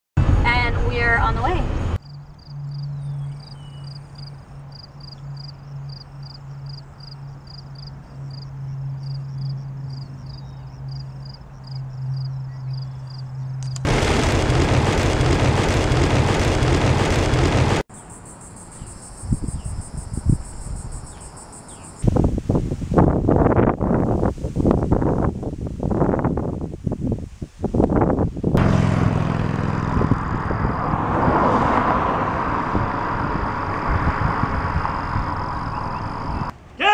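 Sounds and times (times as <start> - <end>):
insects chirping: 2.0 - 13.8, 17.9 - 22.2, 32.9 - 36.5
wind buffeting microphone: 22.0 - 36.5.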